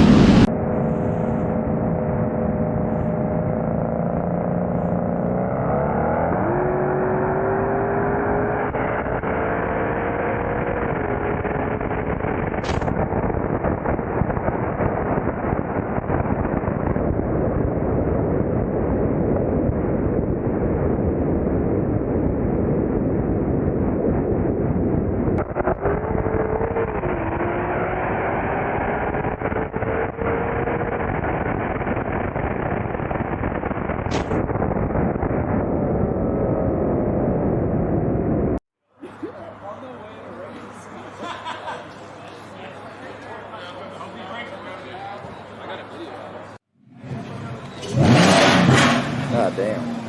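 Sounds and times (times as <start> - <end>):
wind noise rushing: 0.0 - 3.5, 29.6 - 38.6.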